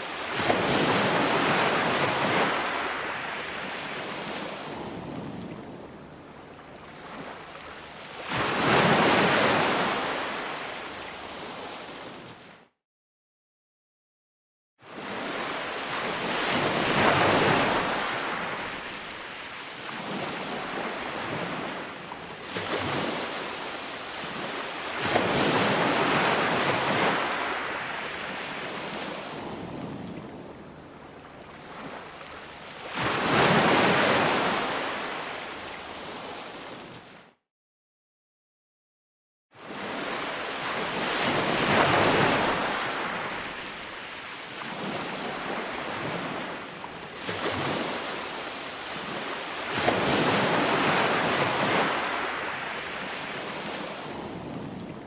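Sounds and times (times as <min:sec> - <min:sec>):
ocean waves breaking: 0:00.0 - 0:12.6, 0:14.9 - 0:37.2, 0:39.6 - 0:55.0.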